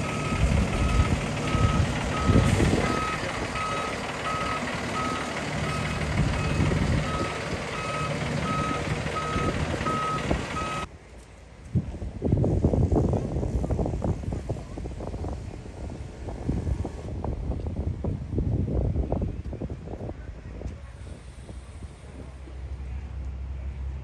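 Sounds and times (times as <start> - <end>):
backup alarm beeping: 0.0 - 10.9
diesel engine running: 0.0 - 10.9
wind buffeting microphone: 0.0 - 10.9, 11.7 - 22.6.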